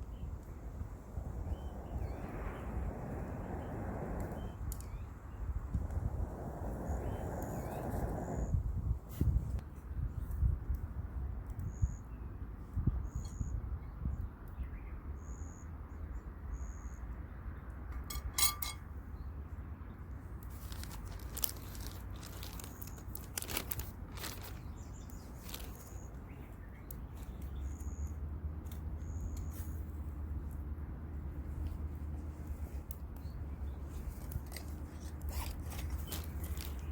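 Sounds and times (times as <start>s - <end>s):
low rumble: 0.3s - 9.0s
clicks and crackles: 20.4s - 26.2s, 32.4s - 36.9s.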